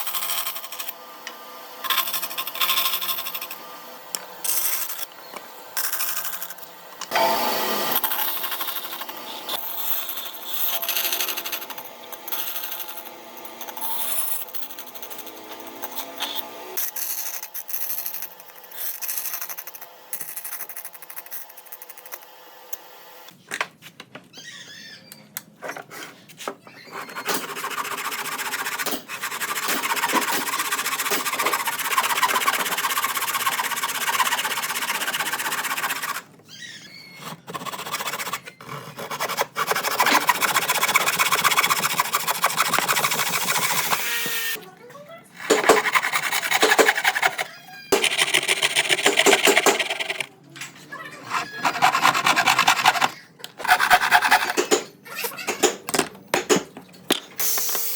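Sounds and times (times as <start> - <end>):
tool working wood: 25.8 - 44.6, 45.3 - 50.3, 51.0 - 57.9.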